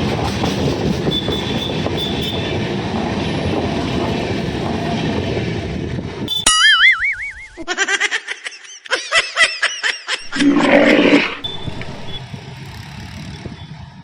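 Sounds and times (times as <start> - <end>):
warbling pitched squeals: 10.2 - 12.2.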